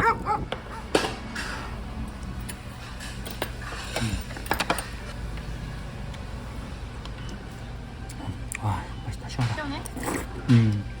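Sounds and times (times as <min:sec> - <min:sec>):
tableware clicks and clinks: 0:02.8 - 0:05.1.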